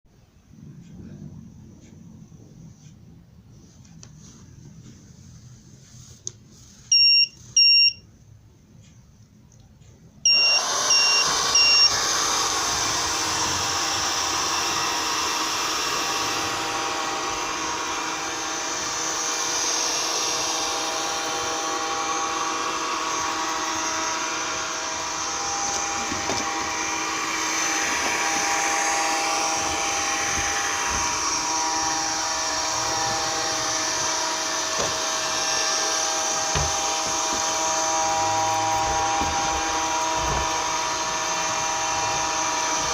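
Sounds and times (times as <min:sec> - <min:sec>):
high beeps: 0:06.9 - 0:08.0
robot vacuum motors whining: 0:10.3 - 0:42.9.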